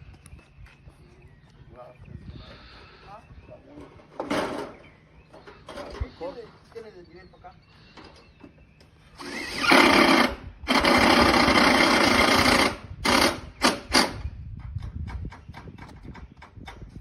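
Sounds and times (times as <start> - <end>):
power driver driving screws: 9.2 - 14.2.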